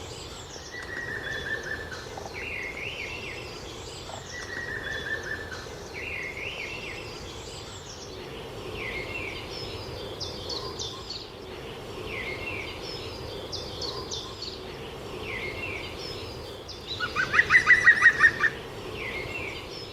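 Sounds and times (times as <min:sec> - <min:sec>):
birds chirping: 0:00.0 - 0:19.9
fast run of bird calls: 0:15.7 - 0:18.7.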